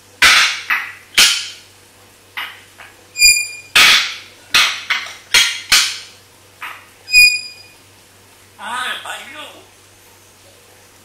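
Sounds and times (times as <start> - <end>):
parrot high whistle: 3.2 - 3.8, 7.1 - 7.8.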